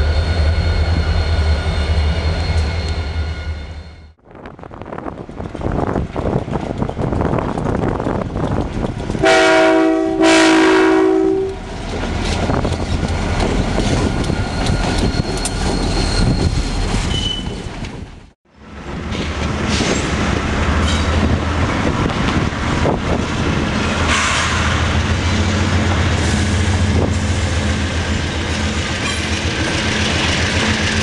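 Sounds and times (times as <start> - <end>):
freight train rumble and clatter: 0.0 - 31.0
train air horn blasts: 9.2 - 11.6, 24.1 - 24.8.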